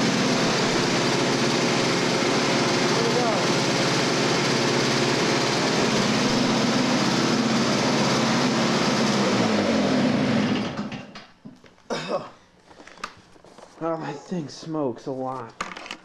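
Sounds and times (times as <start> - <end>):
snowblower engine running: 0.0 - 11.2.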